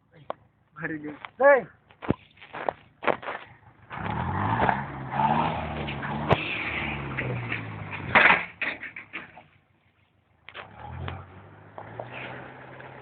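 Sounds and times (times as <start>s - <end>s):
rattling and scraping: 5.6s - 9.6s.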